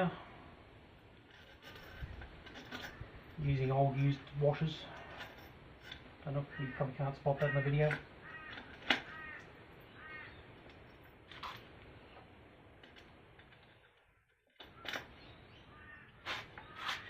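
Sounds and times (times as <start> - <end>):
bird harsh calls: 6.5 - 10.6, 14.7 - 17.0.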